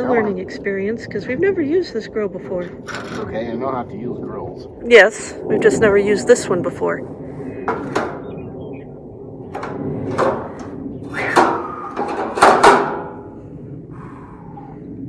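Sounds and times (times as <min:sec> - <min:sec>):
metal grill parts clanking: 0:02.8 - 0:03.3, 0:07.7 - 0:08.2, 0:09.5 - 0:13.3.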